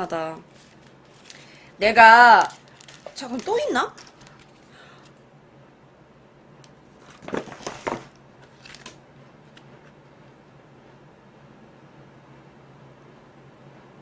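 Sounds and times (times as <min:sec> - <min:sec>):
paper crinkling rustles: 0:00.5 - 0:01.7, 0:02.3 - 0:05.2, 0:07.0 - 0:09.6.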